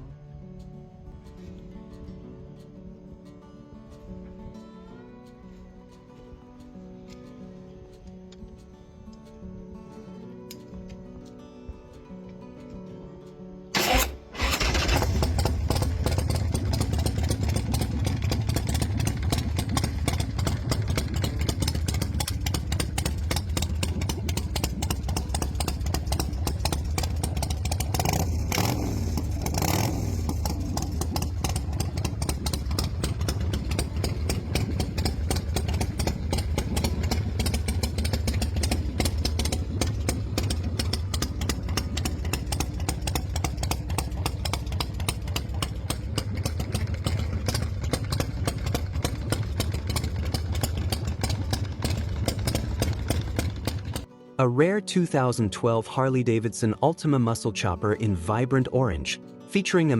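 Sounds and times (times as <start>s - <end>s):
motorcycle engine idling and revving: 13.7s - 54.1s.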